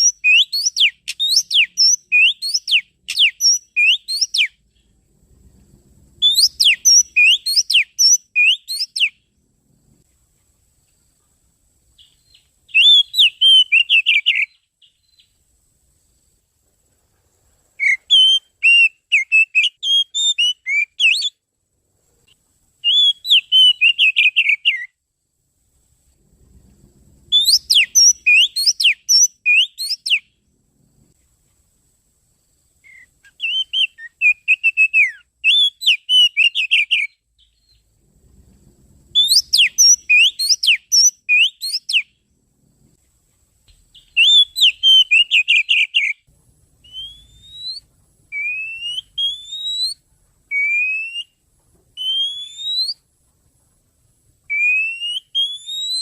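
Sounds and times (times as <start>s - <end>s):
bird song whistled phrases: 0.0s - 4.6s, 6.2s - 9.2s, 12.0s - 15.4s, 17.8s - 21.4s, 22.8s - 25.0s, 27.3s - 30.3s, 32.8s - 37.9s, 39.2s - 42.2s, 43.9s - 51.4s, 52.0s - 53.0s, 54.5s - 56.0s.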